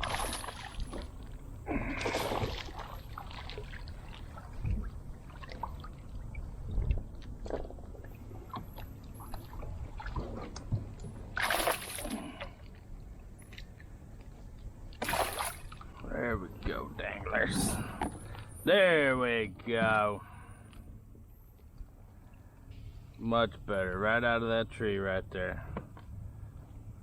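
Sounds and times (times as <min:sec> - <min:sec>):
water splashing and sloshing: 0:00.0 - 0:18.6.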